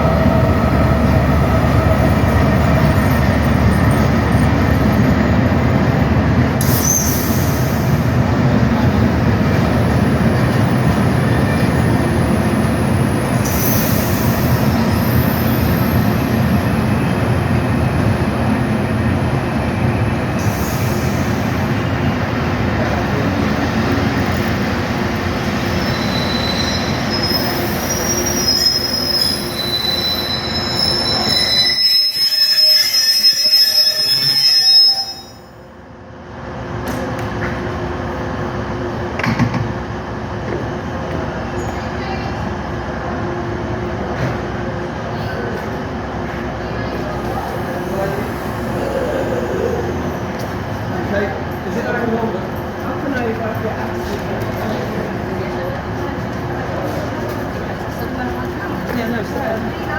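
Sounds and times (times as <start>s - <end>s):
train rumbling: 0.0s - 59.9s
wheel or brake squeal: 6.6s - 7.8s, 25.7s - 35.5s.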